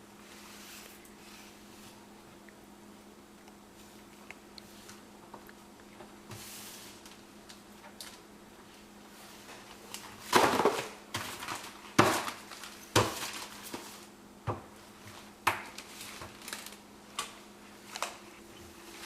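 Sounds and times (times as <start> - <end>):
faint steady hum: 0.0 - 19.0
household objects clattering: 10.0 - 14.6.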